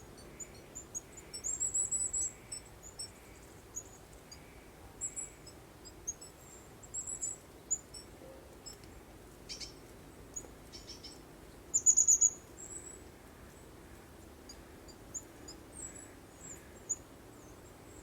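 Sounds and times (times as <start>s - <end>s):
small birds chirping: 0.0s - 8.0s, 9.5s - 13.6s.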